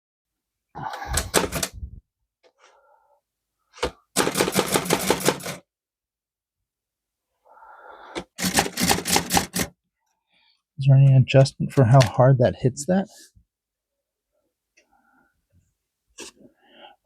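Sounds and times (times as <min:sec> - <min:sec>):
typewriter keys clacking: 0:08.4 - 0:09.7.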